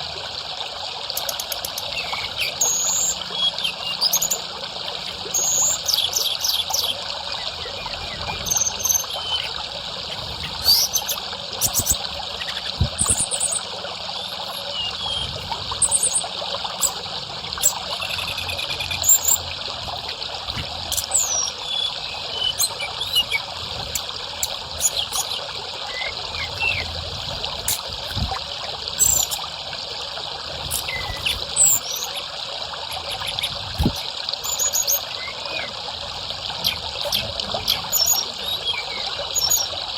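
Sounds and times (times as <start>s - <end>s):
water trickling: 0.0s - 39.9s
bird chirps and whistles: 1.2s - 4.4s, 5.3s - 7.0s, 7.7s - 9.6s, 10.3s - 13.6s, 14.2s - 17.0s, 17.6s - 19.4s, 20.9s - 23.4s, 24.4s - 26.9s, 30.7s - 32.3s, 36.6s - 39.7s.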